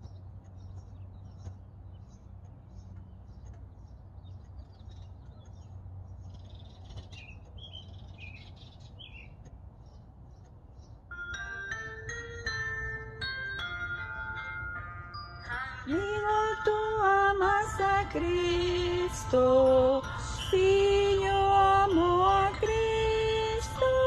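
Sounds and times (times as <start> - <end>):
small birds chirping: 0.0 - 11.4
steady low hum: 0.0 - 24.0
music with chiming mallet percussion: 11.1 - 24.0.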